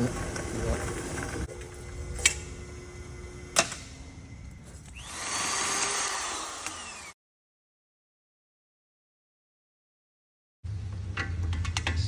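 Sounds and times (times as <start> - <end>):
machine whirring grind: 0.0 - 7.2.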